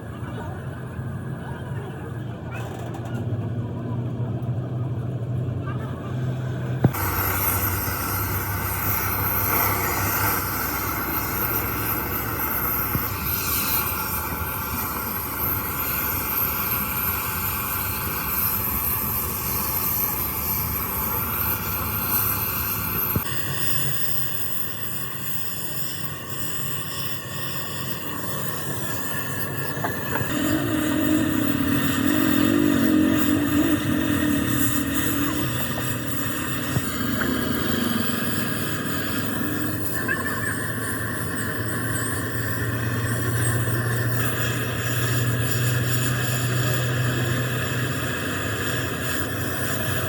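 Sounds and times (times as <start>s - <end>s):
mechanical rumble of machinery: 0.0s - 50.0s.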